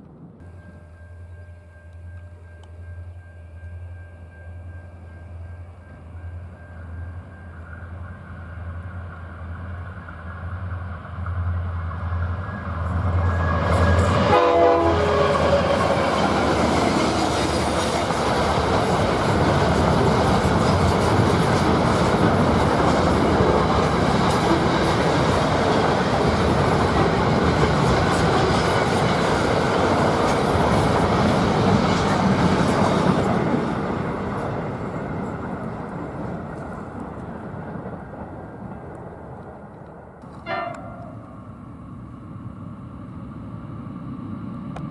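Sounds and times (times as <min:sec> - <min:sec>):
locomotive engine drone: 0:00.0 - 0:44.9
train horn: 0:12.3 - 0:17.8, 0:40.4 - 0:41.5
train cars clattering on rails: 0:12.8 - 0:41.3.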